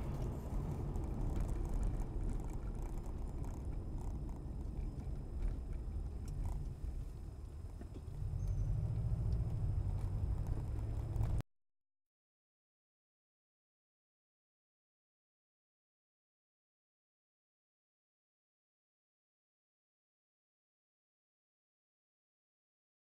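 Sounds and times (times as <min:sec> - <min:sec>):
road noise: 0:00.0 - 0:11.4
vehicle engine rumble: 0:00.0 - 0:11.4.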